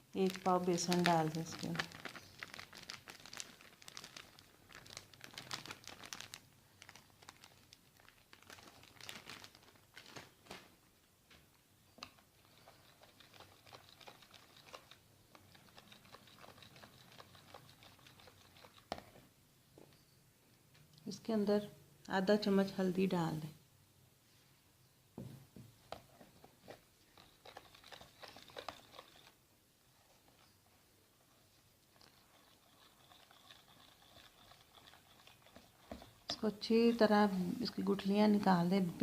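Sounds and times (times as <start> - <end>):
faint crinkling: 0.2 - 20.0, 25.8 - 36.3.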